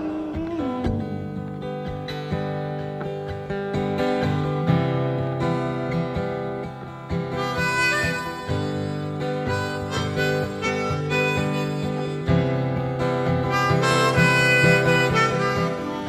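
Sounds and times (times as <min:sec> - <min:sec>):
acoustic guitar strumming: 0:00.0 - 0:16.0
harmonica melody: 0:07.1 - 0:16.0.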